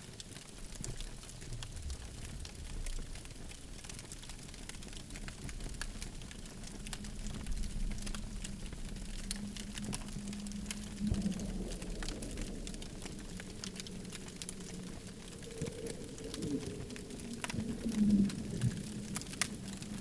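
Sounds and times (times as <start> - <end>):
campfire crackling and popping: 0.0 - 20.0
faint low hum: 5.0 - 20.0.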